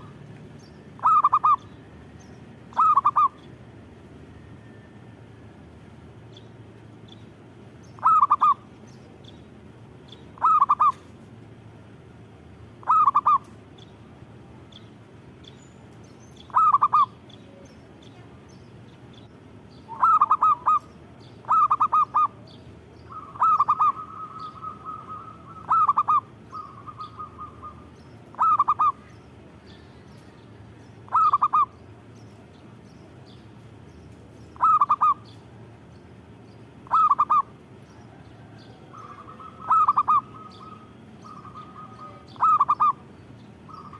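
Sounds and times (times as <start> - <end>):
dove trilling: 0.0 - 4.7, 6.4 - 11.2, 12.3 - 33.5, 34.3 - 43.9
dove cooing: 1.0 - 1.7, 2.7 - 3.4, 8.0 - 8.7, 10.4 - 11.1, 12.8 - 13.6, 16.4 - 17.2, 19.8 - 22.5, 23.1 - 29.1, 31.1 - 31.8, 34.6 - 35.3, 36.8 - 43.0.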